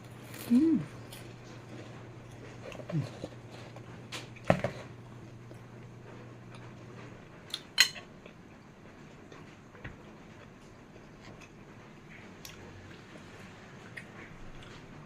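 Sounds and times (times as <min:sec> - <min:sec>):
person murmuring: 0:00.5 - 0:00.9
cutlery clinking on a plate: 0:07.8 - 0:08.1.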